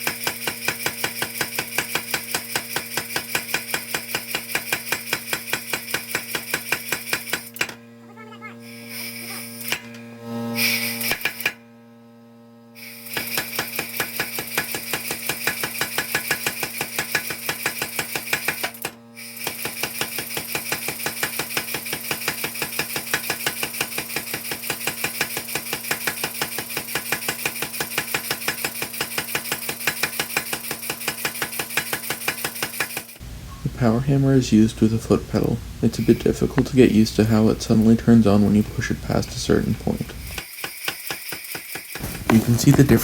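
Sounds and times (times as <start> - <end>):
power hammer striking steel: 0.0 - 7.8, 9.6 - 10.0, 11.0 - 11.6, 13.1 - 33.2
steady hum: 33.2 - 40.4.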